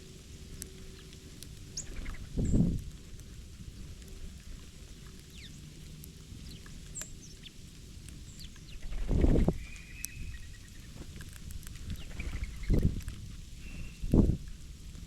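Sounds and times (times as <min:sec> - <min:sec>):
small birds chirping: 0:00.8 - 0:02.7, 0:05.2 - 0:05.7, 0:06.4 - 0:14.3.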